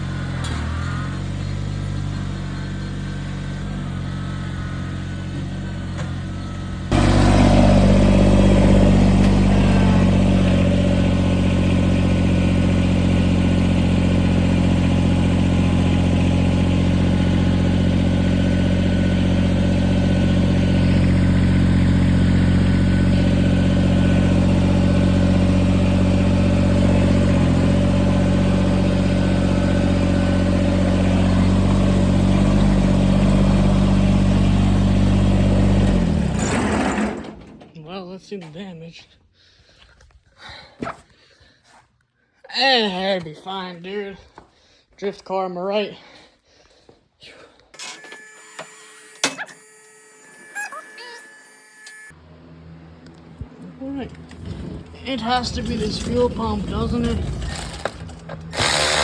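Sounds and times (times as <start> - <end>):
tractor engine running: 0.0 - 38.0, 52.1 - 59.0.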